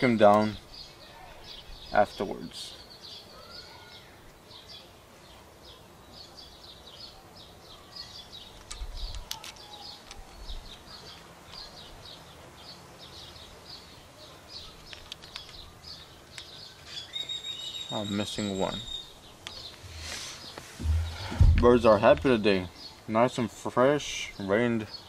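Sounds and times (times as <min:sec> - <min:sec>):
birds chirping: 0:00.0 - 0:25.0
low rumble: 0:20.8 - 0:22.3.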